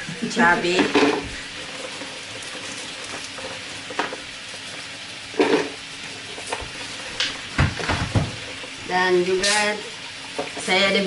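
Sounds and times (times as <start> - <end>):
tofu sizzling in hot oil: 0.0 - 11.0
kitchen knocks and clatters: 0.2 - 1.4, 5.4 - 5.8, 6.4 - 8.7.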